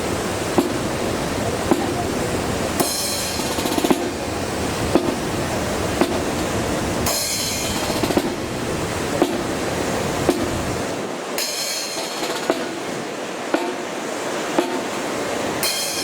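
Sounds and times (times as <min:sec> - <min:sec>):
wind buffeting microphone: 0:00.0 - 0:11.2
drum beat: 0:01.6 - 0:02.2, 0:02.8 - 0:04.3, 0:04.9 - 0:05.3
marching brass band with drums: 0:02.8 - 0:04.1.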